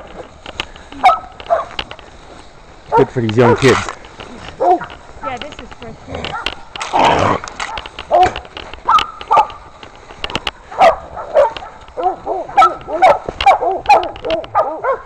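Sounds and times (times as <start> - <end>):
dogs barking: 1.0 - 1.9, 2.9 - 3.2, 4.5 - 5.0, 6.2 - 6.6, 7.6 - 9.7, 10.6 - 15.0.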